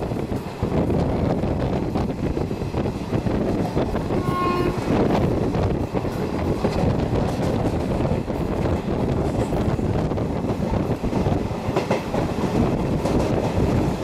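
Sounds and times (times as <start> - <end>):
moving train rumble: 0.0 - 14.0
train horn blast: 4.1 - 5.1.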